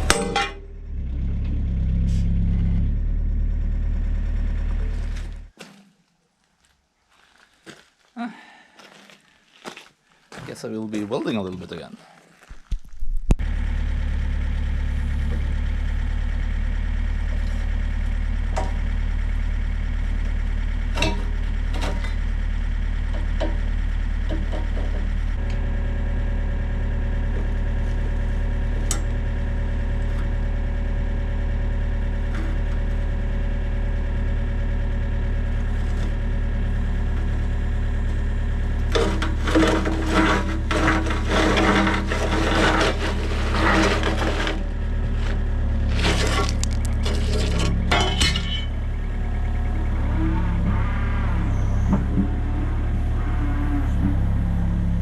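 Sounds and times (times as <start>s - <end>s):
engine running steadily: 0.0s - 5.6s, 13.4s - 55.0s
irregular crackling: 38.9s - 47.9s.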